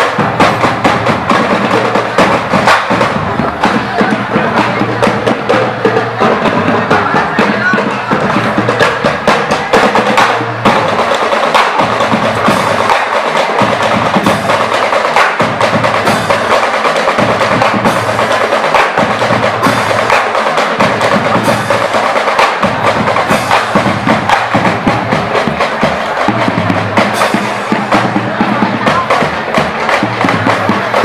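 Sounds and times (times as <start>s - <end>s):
fast drum strikes: 0.0s - 31.0s
marching band playing: 0.0s - 31.0s.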